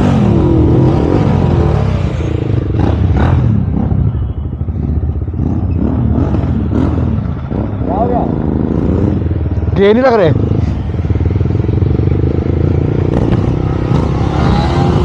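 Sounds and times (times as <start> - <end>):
motorcycle engines running: 0.0 - 15.0.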